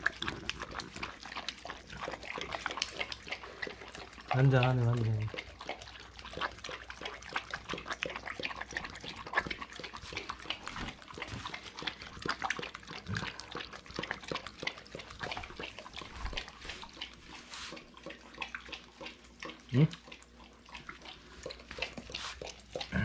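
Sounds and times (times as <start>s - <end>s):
dog chewing wet crunches: 0.0s - 23.0s.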